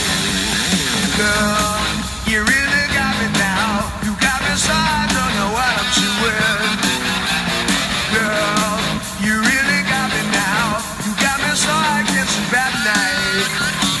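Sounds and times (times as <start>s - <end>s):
rock song with singing: 0.0s - 14.0s.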